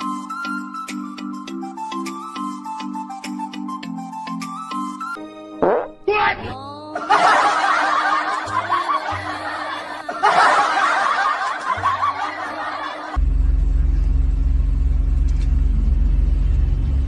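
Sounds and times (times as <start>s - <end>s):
recorded audience laughter: 7.0s - 14.1s
loud low rumble: 13.2s - 17.0s.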